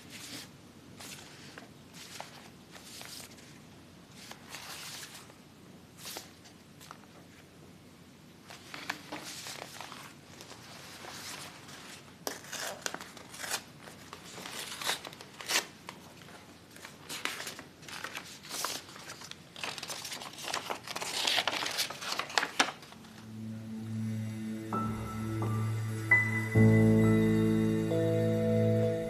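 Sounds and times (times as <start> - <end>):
crinkling and rustling handling: 0.0 - 5.4, 6.0 - 7.5, 8.4 - 23.2.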